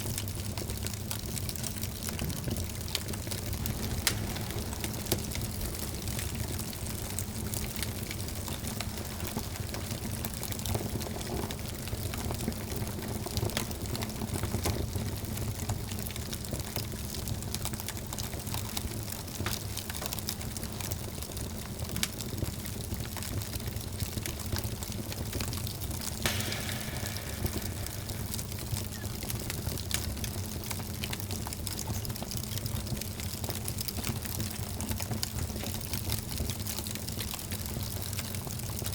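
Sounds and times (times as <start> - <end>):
wood fire crackling: 0.0 - 38.9
flames rumbling: 0.1 - 18.4, 26.2 - 33.8.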